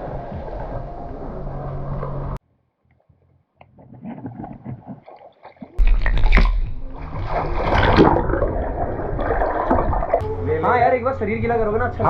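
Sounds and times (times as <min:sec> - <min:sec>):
heavy low rumble: 0:00.0 - 0:02.4, 0:05.8 - 0:12.0
water splashing and sloshing: 0:00.0 - 0:10.4.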